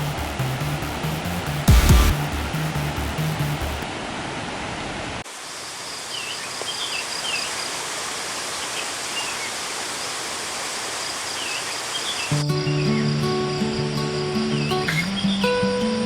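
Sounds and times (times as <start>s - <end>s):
birds chirping: 5.7s - 16.0s
waterfall rushing: 6.8s - 12.4s.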